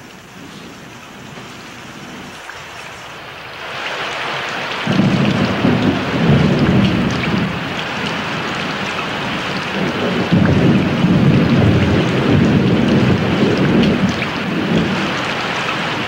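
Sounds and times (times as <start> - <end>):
heavy rain: 0.0 - 16.0
thunder rolling: 4.8 - 16.0.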